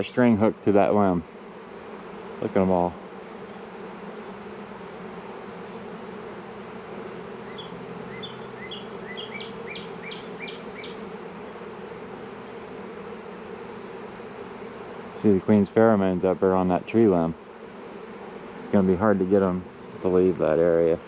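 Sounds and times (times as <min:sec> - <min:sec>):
bee swarm buzzing: 0:00.0 - 0:21.0
bird chirping: 0:07.3 - 0:13.2, 0:18.4 - 0:20.4.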